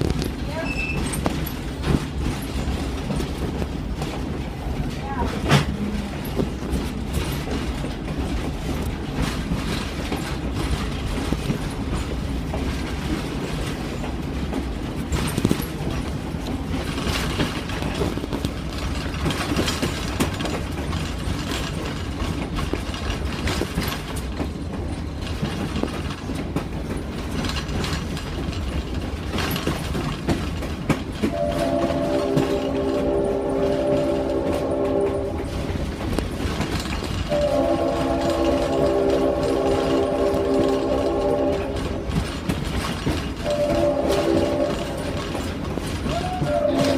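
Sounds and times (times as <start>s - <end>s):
train rumbling along track: 0.0s - 46.9s
wheel clatter on rails: 0.0s - 46.9s
locomotive horn chord: 31.2s - 35.6s, 37.3s - 42.1s, 43.4s - 45.4s, 46.4s - 46.9s.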